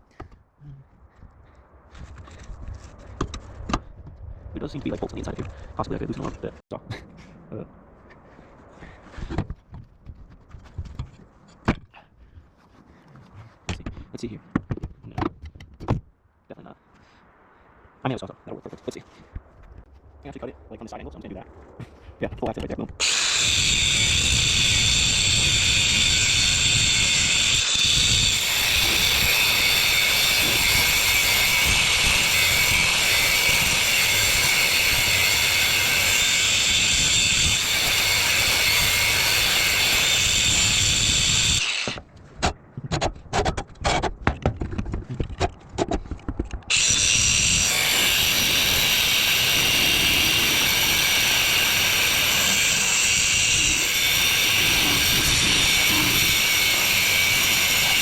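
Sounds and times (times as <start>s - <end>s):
power cutting tool whining: 23.0s - 42.0s, 46.7s - 58.0s.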